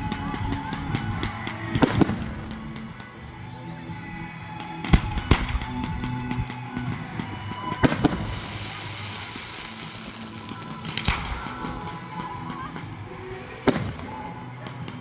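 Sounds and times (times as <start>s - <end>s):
music playing: 0.0s - 15.0s
fireworks bangs: 4.8s - 12.6s.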